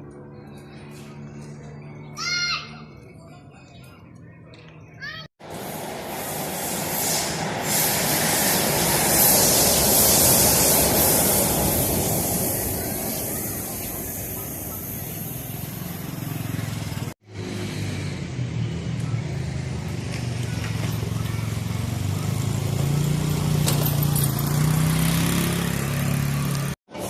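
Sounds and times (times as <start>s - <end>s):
electric metro train rushing: 5.4s - 17.1s.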